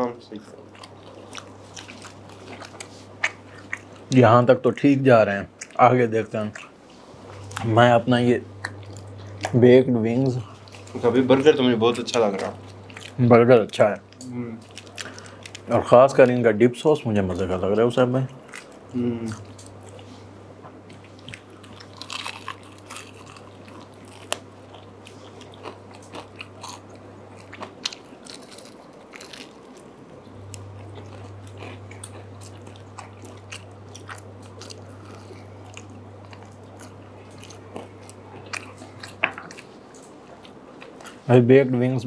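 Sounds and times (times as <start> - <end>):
biting and chewing: 0.7 - 4.2, 10.2 - 16.3, 18.3 - 20.1, 20.7 - 41.2.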